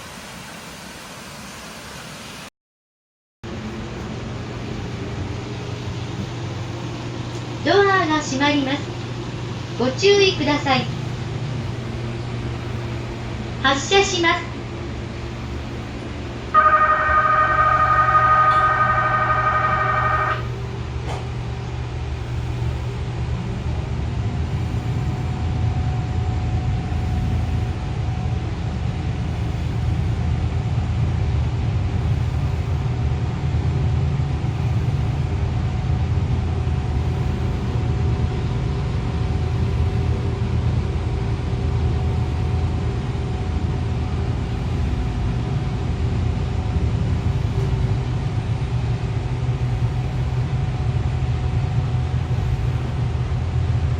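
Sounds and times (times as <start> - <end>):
faint steady whine: 3.5 - 53.9.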